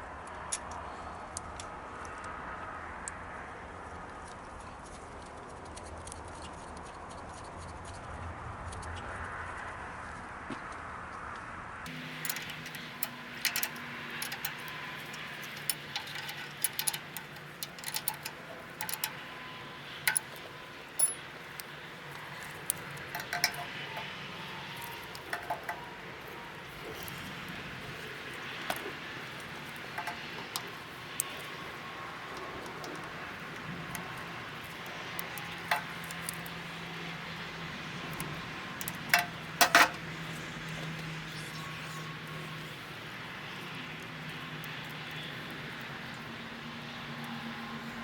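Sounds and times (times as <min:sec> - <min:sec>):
metal tools clinking: 0:11.9 - 0:36.6, 0:38.8 - 0:40.0.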